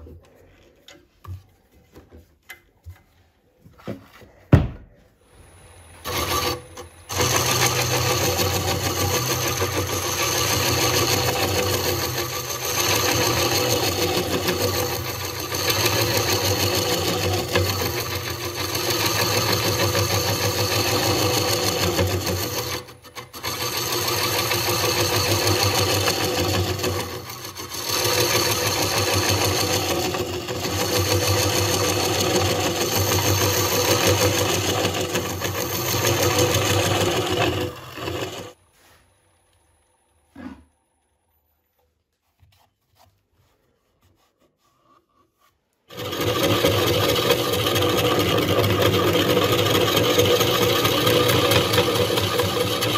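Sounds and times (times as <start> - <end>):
wood lathe motor hum: 5.2 - 41.2, 45.9 - 52.9
tool hissing on spinning wood: 5.4 - 38.6, 45.9 - 52.9.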